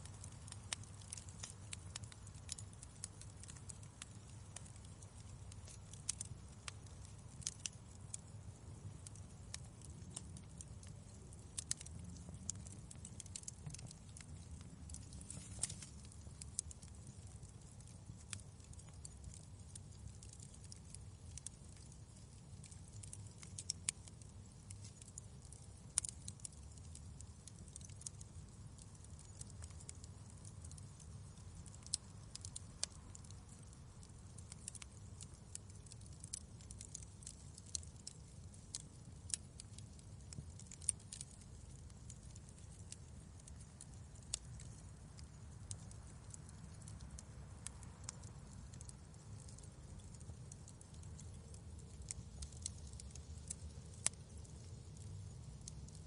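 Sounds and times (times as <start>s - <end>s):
burning wood crackling and popping: 0.0s - 56.0s
low fire rumble: 0.0s - 56.0s.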